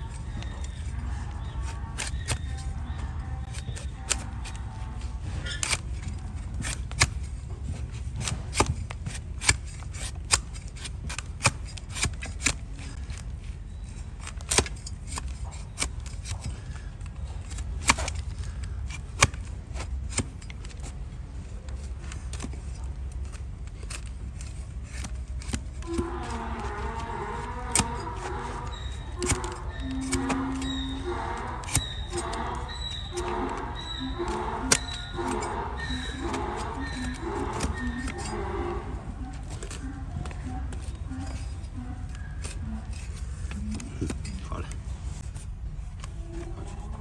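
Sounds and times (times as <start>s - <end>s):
hoof knife cutting and scraping: 0.0s - 47.0s
steady low rumble: 30.6s - 47.0s.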